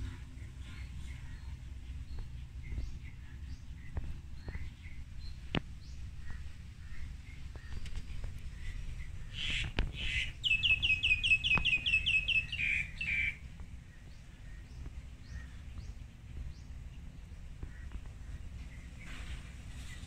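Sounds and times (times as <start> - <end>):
faint bird chirps: 0.0 - 16.0
harsh bird calls: 5.9 - 16.0.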